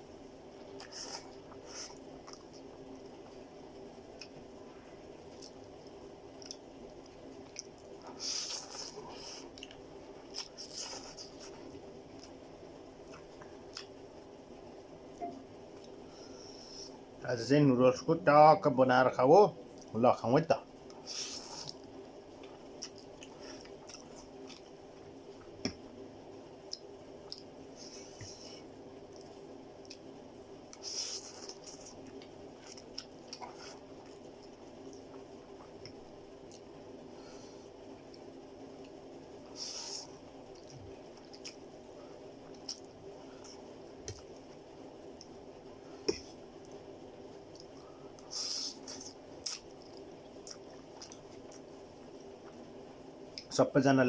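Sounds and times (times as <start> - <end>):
faint hum: 0.0 - 54.0
person chewing food: 5.2 - 12.4, 21.0 - 25.8, 26.6 - 30.1, 30.7 - 36.7, 39.6 - 45.4, 47.5 - 52.6.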